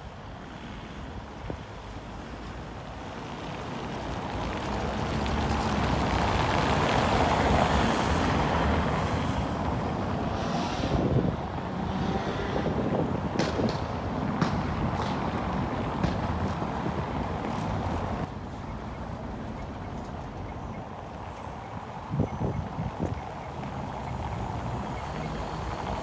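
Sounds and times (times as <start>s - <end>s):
vehicle passing by: 4.9s - 13.8s.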